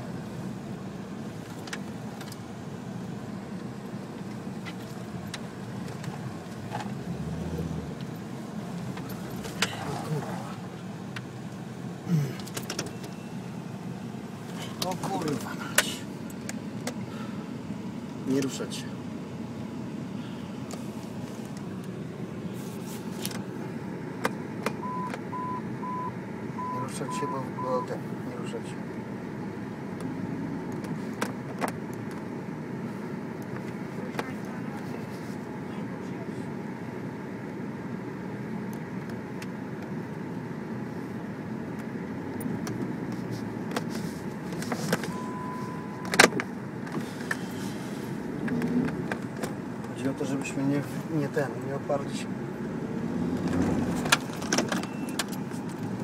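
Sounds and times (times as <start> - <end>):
vehicle engine rumbling: 0.0 - 56.0
short steady beep: 24.8 - 27.9, 45.1 - 46.1.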